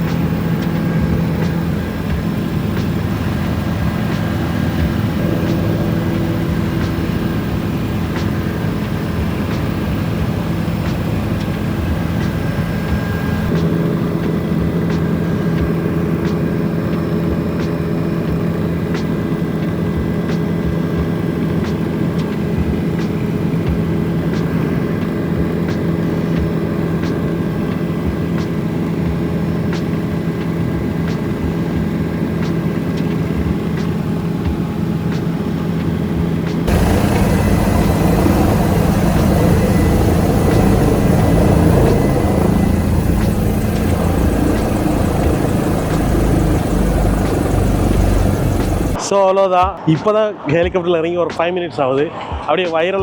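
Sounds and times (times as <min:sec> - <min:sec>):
helicopter engine and rotor drone: 0:00.0 - 0:49.0
rough rushing noise: 0:36.5 - 0:49.0.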